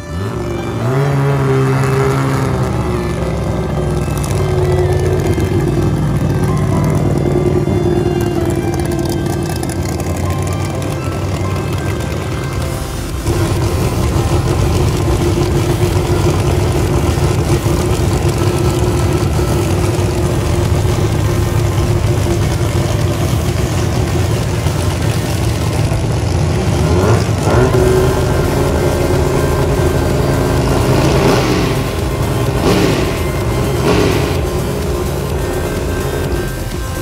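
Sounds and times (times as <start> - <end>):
engine revving: 0.0 - 37.0
race car engine idling: 0.0 - 37.0.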